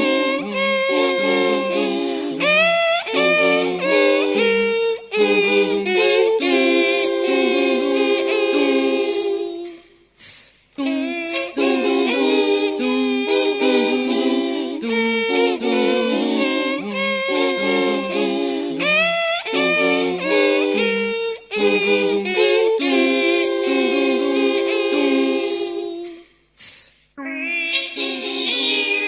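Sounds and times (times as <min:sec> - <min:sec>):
voices singing in close harmony: 0:00.0 - 0:10.0, 0:10.8 - 0:26.4, 0:27.3 - 0:29.0
short rhythmic hiss: 0:08.7 - 0:12.5, 0:25.4 - 0:27.2.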